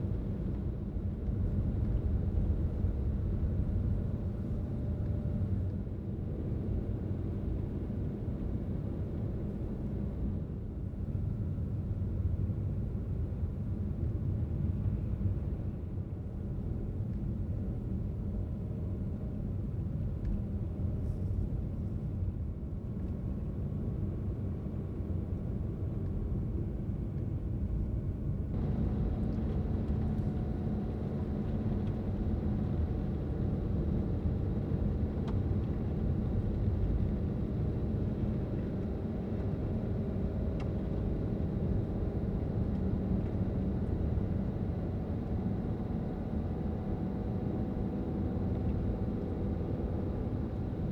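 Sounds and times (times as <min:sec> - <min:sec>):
car tyres and engine rumble: 0:22.8 - 0:50.9.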